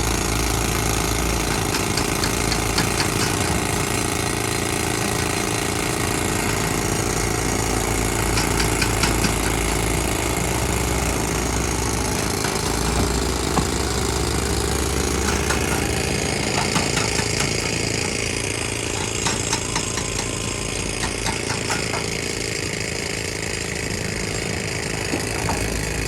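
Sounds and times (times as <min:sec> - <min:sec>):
diesel engine running: 0:00.0 - 0:26.0
rapid sharp knocks: 0:01.4 - 0:03.7, 0:08.2 - 0:09.8, 0:15.1 - 0:22.2.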